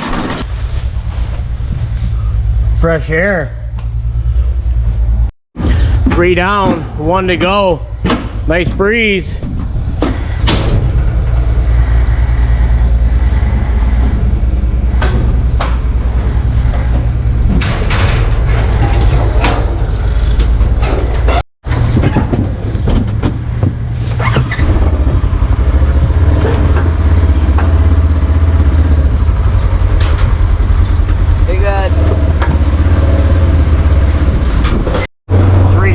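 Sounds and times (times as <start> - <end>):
low engine drone: 0.0 - 21.4, 22.8 - 35.9.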